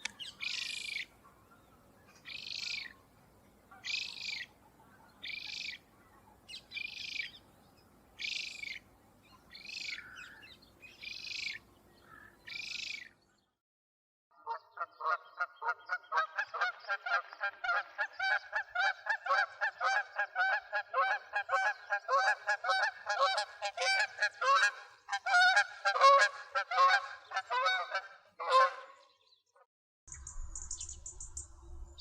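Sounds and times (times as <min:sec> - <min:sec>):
birds calling: 0:00.0 - 0:13.6, 0:14.4 - 0:32.0
low hum: 0:30.1 - 0:32.0.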